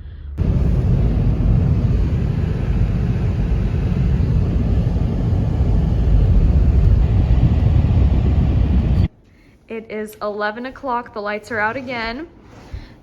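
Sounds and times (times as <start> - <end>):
wind gusts buffeting microphone: 0.4 - 9.1.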